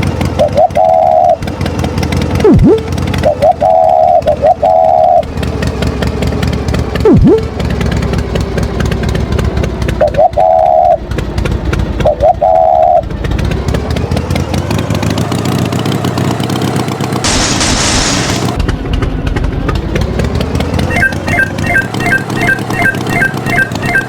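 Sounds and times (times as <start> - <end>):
cartoon tractor engine: 0.0 - 24.0
short high tones: 7.1 - 7.5
loud hiss: 17.2 - 18.6.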